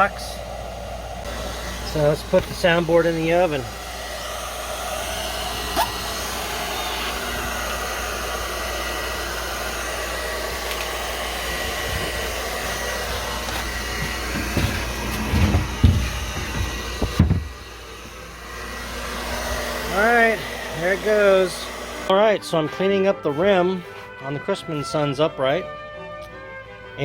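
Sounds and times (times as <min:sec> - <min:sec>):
blow dryer running: 0:00.0 - 0:22.3
low knocks: 0:14.0 - 0:17.6.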